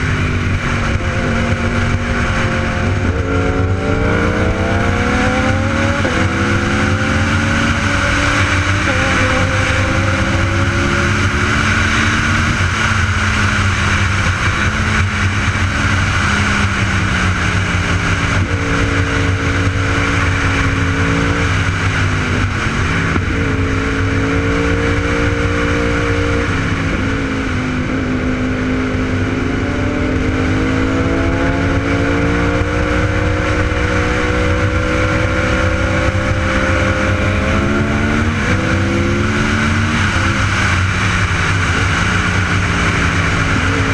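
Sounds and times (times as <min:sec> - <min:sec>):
motorcycle engine revving: 0:00.0 - 0:43.9
wind noise: 0:00.0 - 0:43.9.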